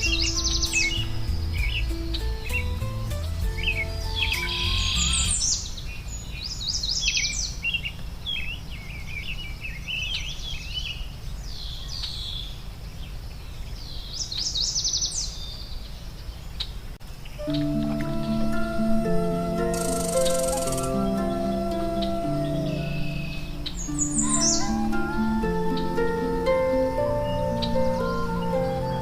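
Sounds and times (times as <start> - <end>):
low background rumble: 0.0 - 5.6
songbirds singing and chirping: 0.0 - 29.0.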